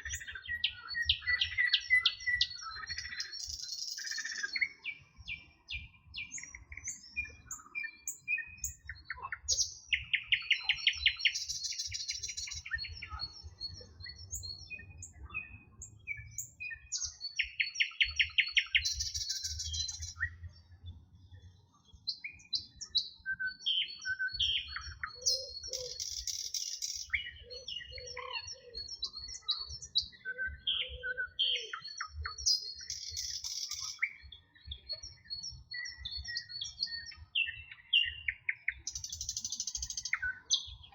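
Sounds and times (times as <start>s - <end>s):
songbirds chirping and whistling: 0.0s - 40.9s.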